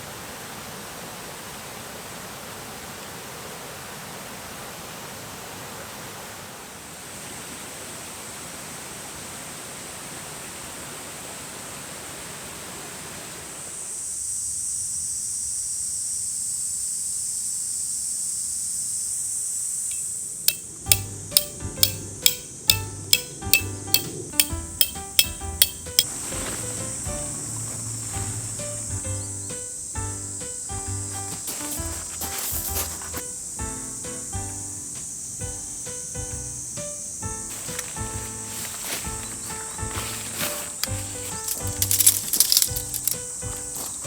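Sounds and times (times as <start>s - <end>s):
steady rain hiss: 0.0s - 44.0s
cicada chorus drone: 13.3s - 44.0s
sharp knocks: 20.5s - 26.1s.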